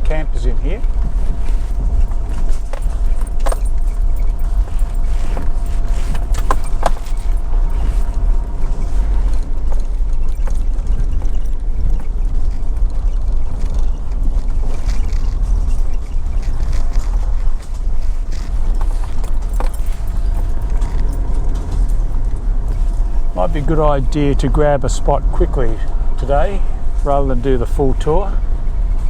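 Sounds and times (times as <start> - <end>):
vehicle rumbling on dirt track: 0.0 - 29.0
knocks and rattles: 0.8 - 24.6.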